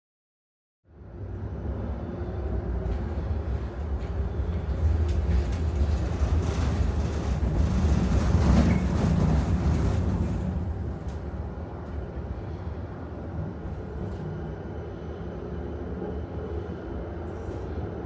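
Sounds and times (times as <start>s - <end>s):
tram rumbling on rails: 1.0s - 18.0s.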